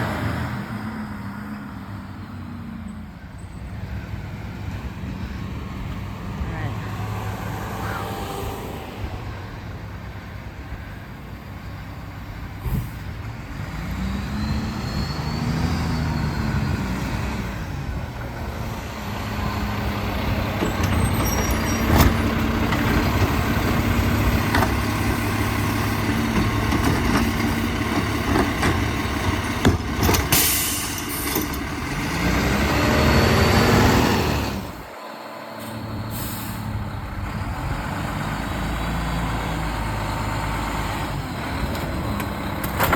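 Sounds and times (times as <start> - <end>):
garbage truck diesel engine revving: 11.5 - 42.9
scattered knocks: 26.0 - 30.4
sharp air hiss: 35.6 - 36.7.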